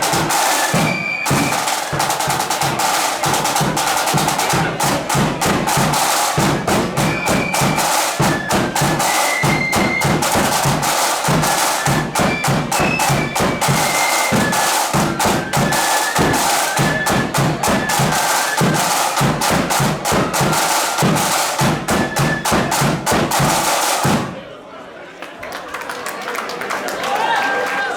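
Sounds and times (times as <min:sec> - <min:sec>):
flutes playing melody: 0:00.0 - 0:04.8, 0:05.8 - 0:23.7
rapid snare drumming: 0:00.0 - 0:24.4.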